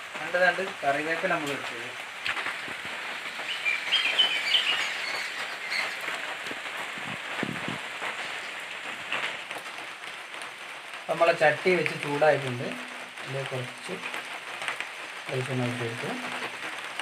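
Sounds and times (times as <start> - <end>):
steady background hiss: 0.0 - 17.0
birds chirping: 2.3 - 7.3.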